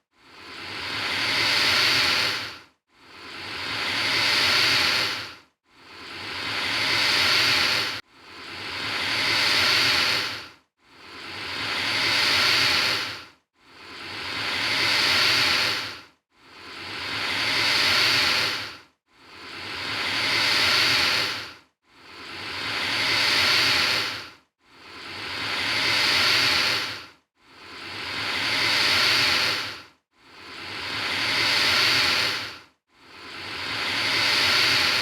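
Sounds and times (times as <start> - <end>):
alligator hissing: 0.4 - 2.5, 3.2 - 5.3, 6.0 - 8.0, 8.6 - 10.4, 11.1 - 13.2, 13.8 - 16.0, 16.7 - 21.5, 22.1 - 24.2, 24.9 - 27.0, 27.7 - 29.8, 30.4 - 32.6, 33.3 - 35.0.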